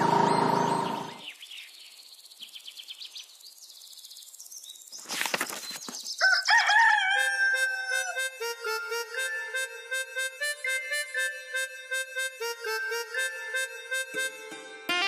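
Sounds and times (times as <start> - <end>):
birds chirping softly: 0.0 - 6.9
children's song music: 7.5 - 15.0
melody of held notes: 8.0 - 15.0.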